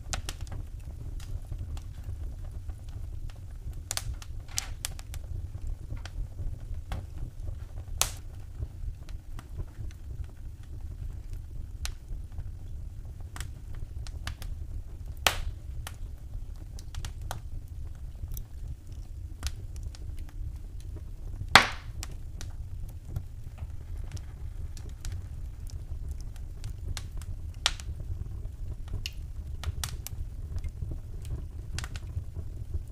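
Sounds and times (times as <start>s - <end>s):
low rumble of fire: 0.0s - 32.9s
wood fire crackling: 0.0s - 32.9s
loud sharp pops: 21.5s - 21.9s.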